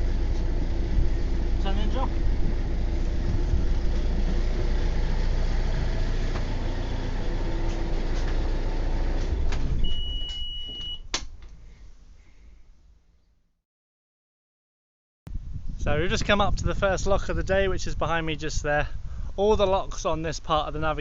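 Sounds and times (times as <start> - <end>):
boat engine running: 0.0 - 10.0
high steady beep: 9.8 - 11.0.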